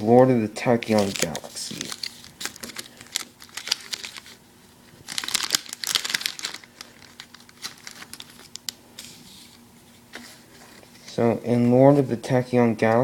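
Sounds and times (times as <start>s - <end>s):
foil wrapper tearing and crinkling: 0.8s - 4.4s, 5.0s - 8.8s.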